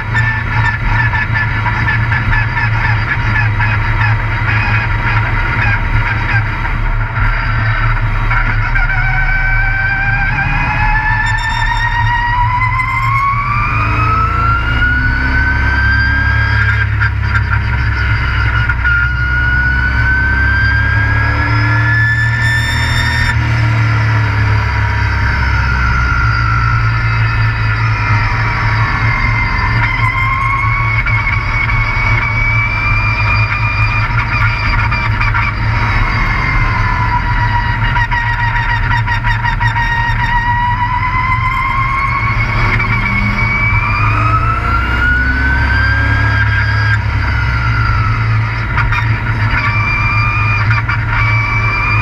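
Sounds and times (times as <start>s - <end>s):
high-pitched engine whine: 0.0s - 52.0s
truck engine rumbling under load: 0.0s - 52.0s.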